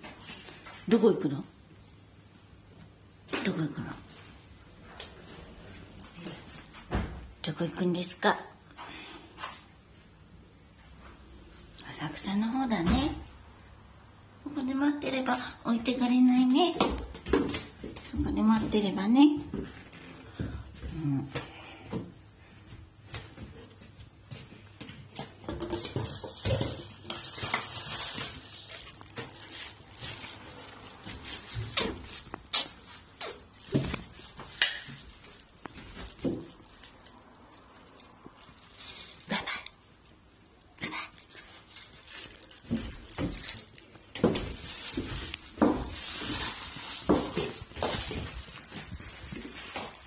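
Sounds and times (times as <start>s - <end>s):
dog paws pattering on floor: 15.0s - 22.0s, 22.6s - 39.7s, 41.1s - 50.0s
rustling: 25.5s - 40.5s, 41.1s - 50.0s.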